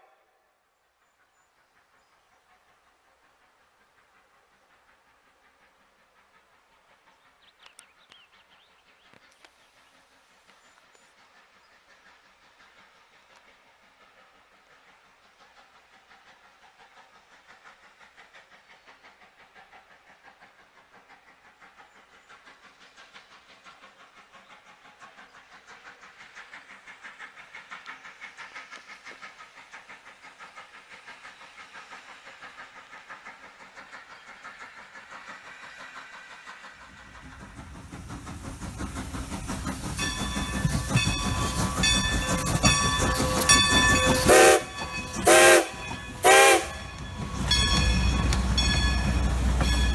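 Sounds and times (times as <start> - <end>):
steam locomotive exhaust beating: 1.0 - 49.9
locomotive rumbling: 34.5 - 49.9
steam whistle: 43.1 - 47.0.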